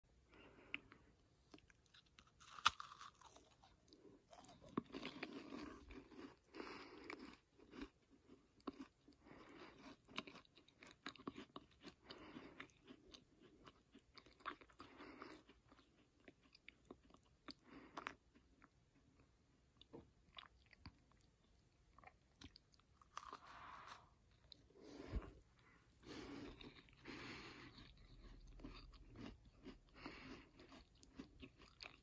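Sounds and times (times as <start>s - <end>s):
person chewing: 0.3s - 32.0s
crunching bite: 1.5s - 6.4s.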